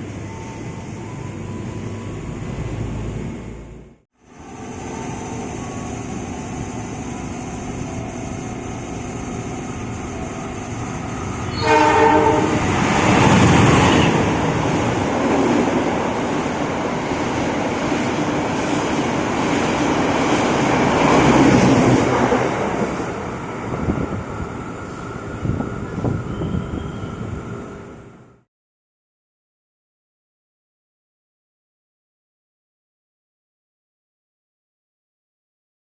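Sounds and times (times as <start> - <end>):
train horn blast: 11.4 - 12.8.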